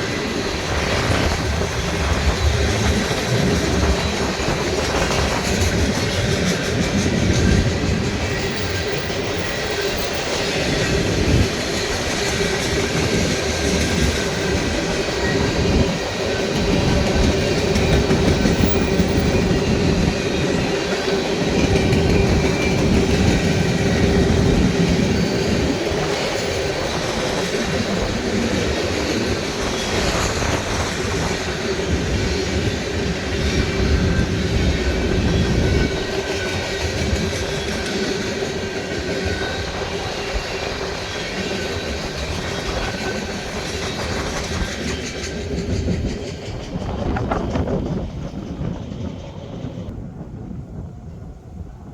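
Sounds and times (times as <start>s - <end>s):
freight train wheels rumbling: 0.0s - 51.9s
train knocks: 0.7s - 32.7s.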